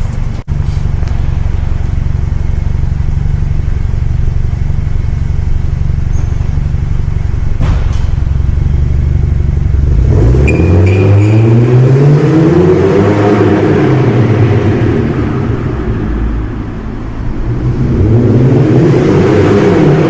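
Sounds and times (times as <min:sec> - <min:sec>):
car engine idling: 0:00.0 - 0:10.5, 0:13.5 - 0:18.6.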